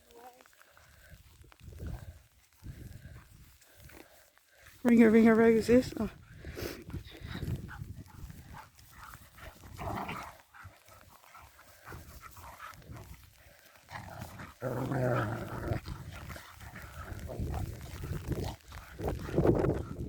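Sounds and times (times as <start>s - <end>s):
dog growling and grumbling: 9.6s - 10.4s, 13.9s - 20.0s.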